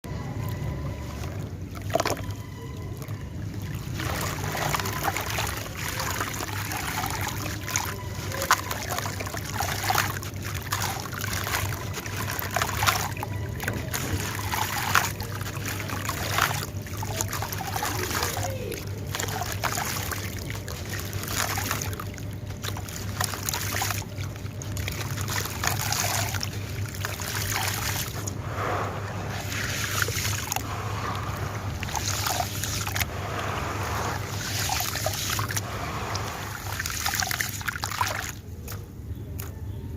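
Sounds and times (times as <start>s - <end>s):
low steady hum: 0.0s - 39.9s
cement chunks crumbling in water: 1.3s - 28.4s.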